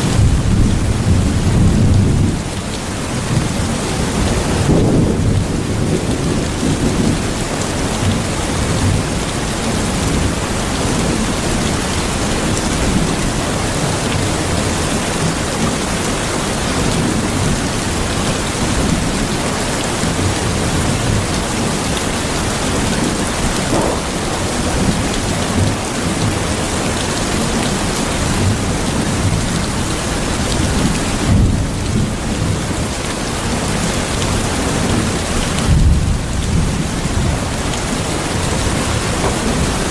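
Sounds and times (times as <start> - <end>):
heavy rain: 0.0 - 39.9
thunder rumbling: 22.4 - 26.6.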